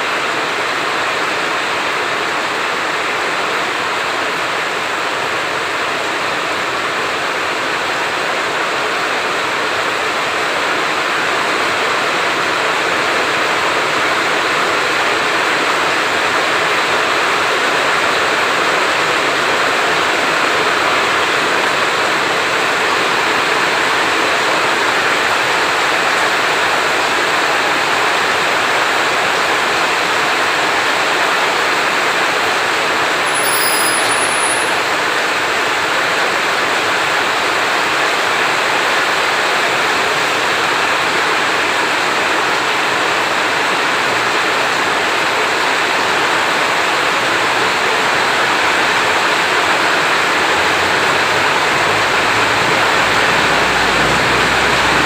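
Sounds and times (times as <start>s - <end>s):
heavy rain hissing: 0.0s - 55.0s
brief high chirp: 33.3s - 35.0s.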